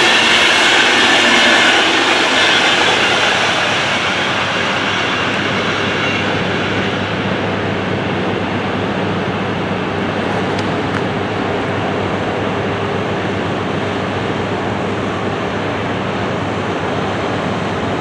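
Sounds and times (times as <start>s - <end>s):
train wheels on rails: 0.0s - 12.2s.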